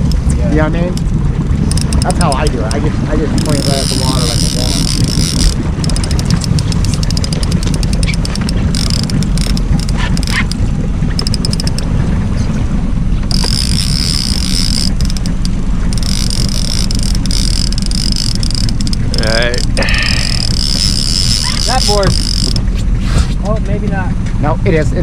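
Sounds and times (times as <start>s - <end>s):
fast clicks: 0.0s - 11.9s, 13.2s - 22.8s
boat motor running: 0.0s - 25.0s
wind rumbling on microphone: 0.0s - 25.0s.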